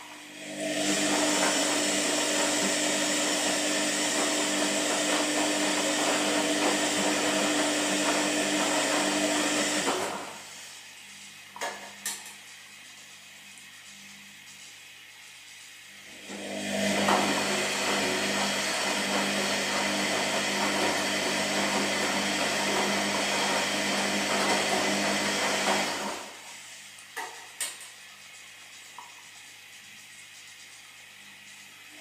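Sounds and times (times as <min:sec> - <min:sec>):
washing machine humming: 0:00.0 - 0:32.0.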